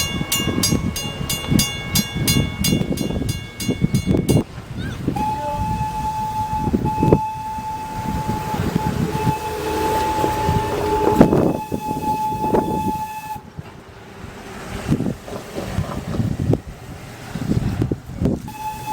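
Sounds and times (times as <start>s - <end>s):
locomotive air horn blasts: 0.0s - 13.6s, 18.4s - 18.9s
train rumbling and clattering: 0.0s - 18.9s.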